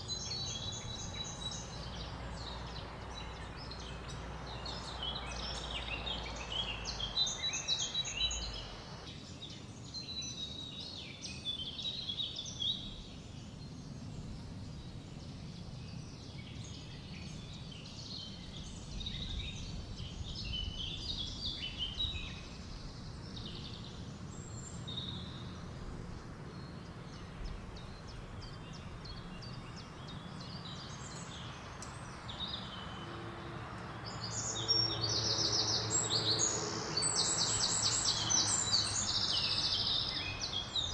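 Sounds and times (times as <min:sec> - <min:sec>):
songbirds chirping and singing: 0:00.0 - 0:40.9
wind hiss: 0:04.0 - 0:09.1.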